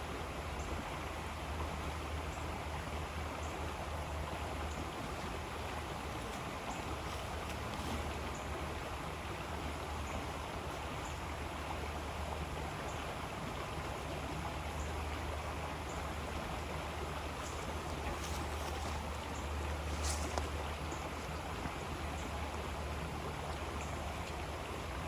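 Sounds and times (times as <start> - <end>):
river water rushing: 0.0 - 25.0.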